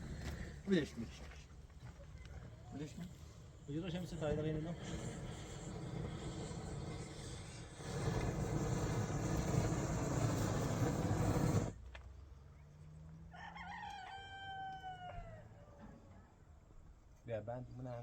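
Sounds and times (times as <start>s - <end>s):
rooster crowing: 13.3s - 16.0s.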